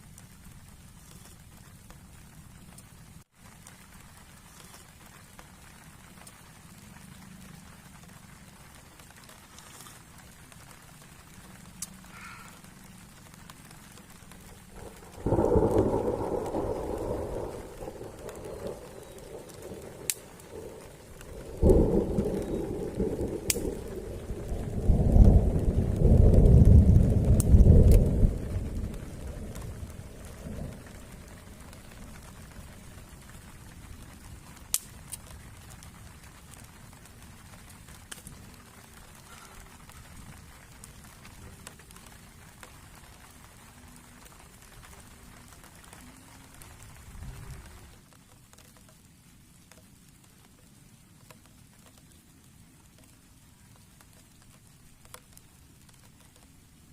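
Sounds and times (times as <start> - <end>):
heavy rain: 0.0 - 56.9
raindrop ticks: 0.0 - 56.9
thunder rumbling: 11.6 - 48.0.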